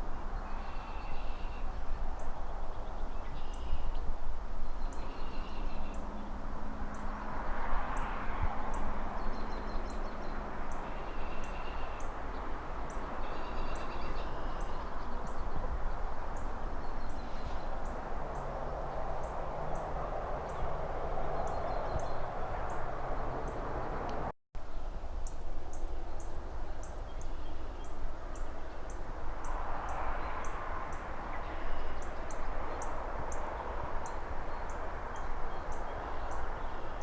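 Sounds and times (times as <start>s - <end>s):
birds chirping: 0.0s - 24.3s
distant traffic: 0.0s - 37.0s
trees rustling in wind: 0.0s - 37.0s
vehicle passing: 5.3s - 24.3s, 28.1s - 37.0s.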